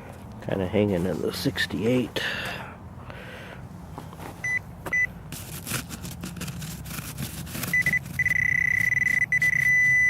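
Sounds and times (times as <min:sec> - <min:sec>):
rustling and scraping: 0:00.0 - 0:02.2, 0:03.9 - 0:09.9
metal detector pinpointer beeping: 0:04.4 - 0:05.1, 0:07.7 - 0:10.0.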